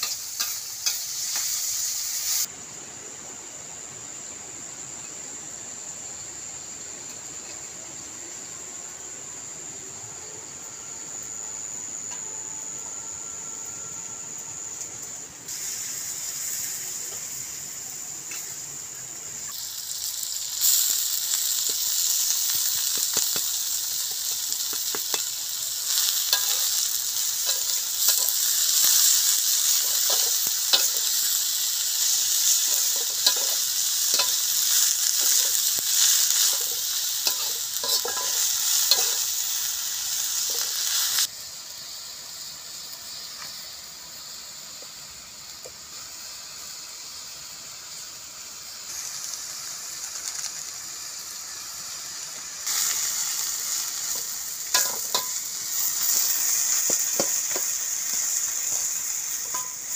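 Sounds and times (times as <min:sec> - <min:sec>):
leaves sizzling in a wok: 0:00.0 - 0:59.9
spatula scraping a pan: 0:32.4 - 0:39.3.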